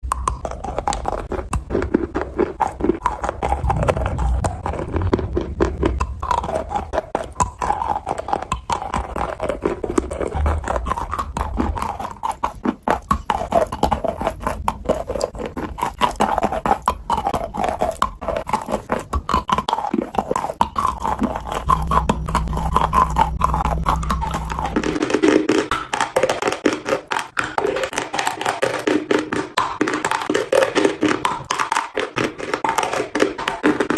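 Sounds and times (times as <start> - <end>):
chalk being crunched and chewed: 0.1 - 28.9
low hum: 3.2 - 8.3, 9.1 - 12.6, 20.8 - 25.8.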